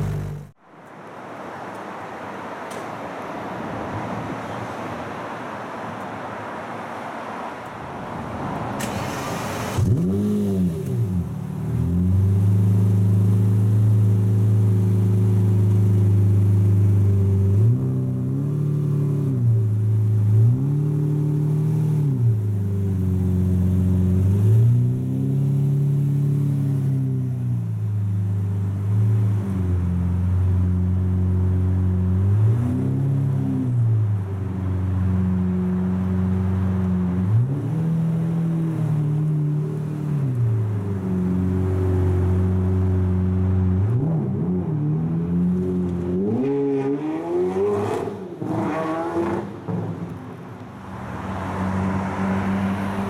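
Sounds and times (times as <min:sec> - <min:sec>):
car engine idling and revving: 0:00.0 - 0:01.8, 0:07.4 - 0:53.0.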